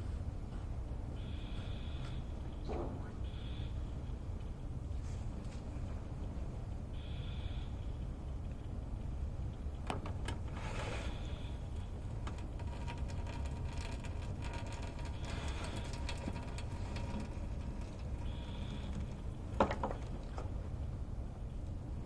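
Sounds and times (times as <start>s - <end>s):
espresso machine rumble: 9.9s - 20.5s.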